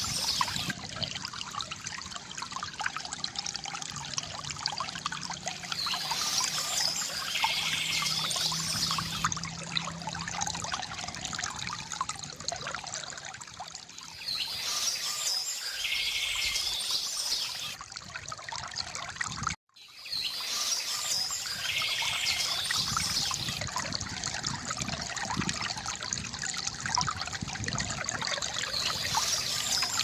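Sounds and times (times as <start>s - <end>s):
birds chirping and trilling: 0.0s - 0.8s, 5.7s - 9.3s, 14.1s - 17.8s, 19.8s - 23.6s, 28.6s - 30.0s
water trickling from fountain: 0.0s - 30.0s.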